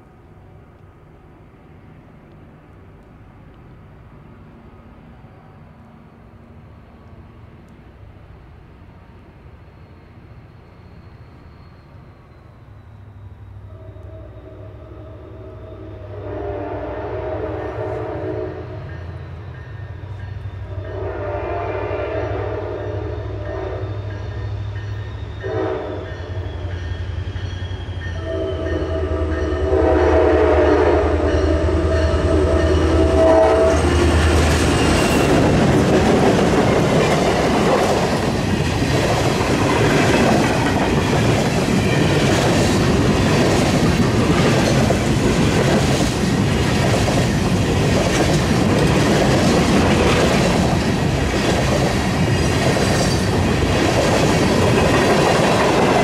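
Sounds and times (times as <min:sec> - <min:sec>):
freight cars rumbling over rails: 0:00.0 - 0:56.0
train horn: 0:13.6 - 0:27.0, 0:27.8 - 0:35.5.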